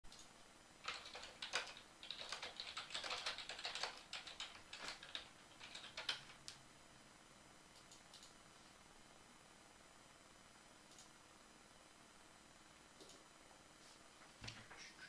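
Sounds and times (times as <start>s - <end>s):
keyboard typing clicks: 0.1s - 6.6s, 7.8s - 8.4s.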